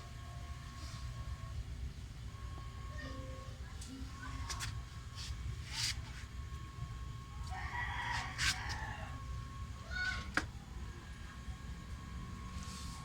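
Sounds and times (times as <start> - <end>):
rooster crowing: 7.5 - 10.3.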